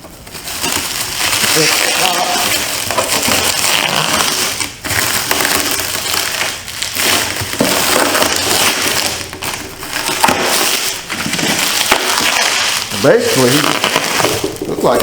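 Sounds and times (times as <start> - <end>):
packing material rustling: 0.0 - 15.0.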